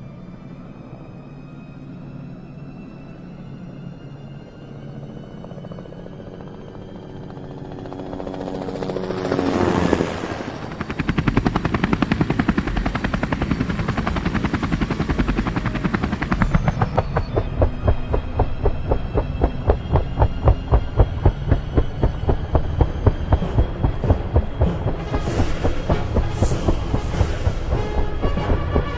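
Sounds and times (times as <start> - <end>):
high turbine whine: 0.0 - 28.9
helicopter rotor chop: 5.4 - 28.9
rising whoosh: 16.4 - 28.9.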